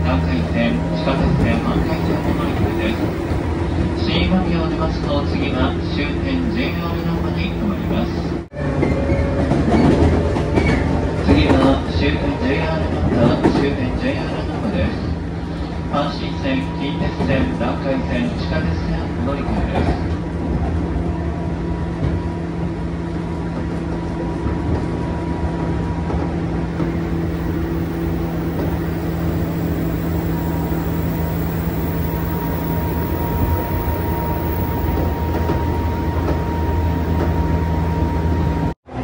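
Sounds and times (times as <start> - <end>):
low hum: 0.0 - 4.0, 26.6 - 38.8
train wheels on rails: 0.0 - 15.6, 19.4 - 38.7
high electric whine: 1.1 - 3.6, 6.5 - 8.2, 26.7 - 38.8.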